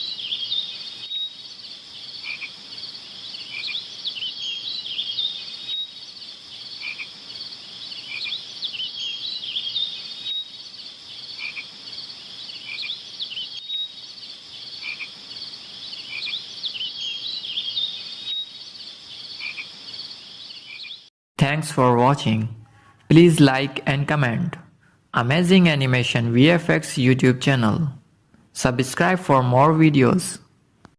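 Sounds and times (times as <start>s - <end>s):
frogs and insects chirping chorus: 0.0s - 21.1s.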